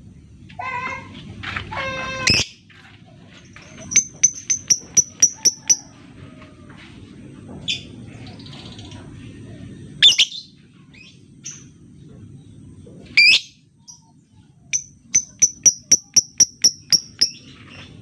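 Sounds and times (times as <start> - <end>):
lovebird chirping: 3.9 - 5.8, 13.2 - 17.8.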